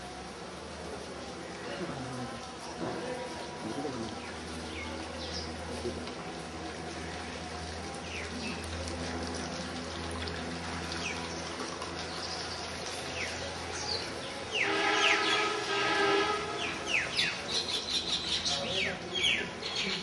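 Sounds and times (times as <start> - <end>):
small birds chirping: 16.6 - 20.0.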